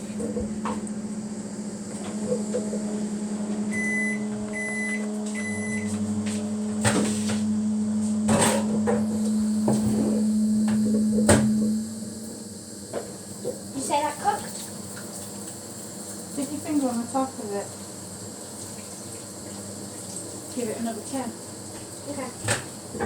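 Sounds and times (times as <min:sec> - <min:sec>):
microwave oven humming: 0:00.0 - 0:23.0.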